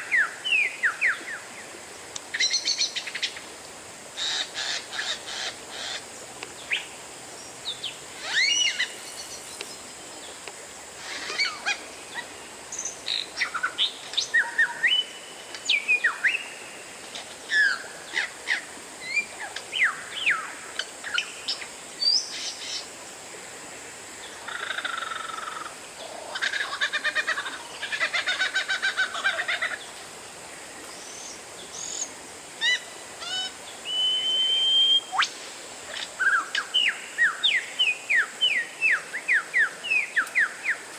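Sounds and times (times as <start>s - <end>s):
bird singing whistled song: 8.2s - 9.4s, 33.8s - 35.3s.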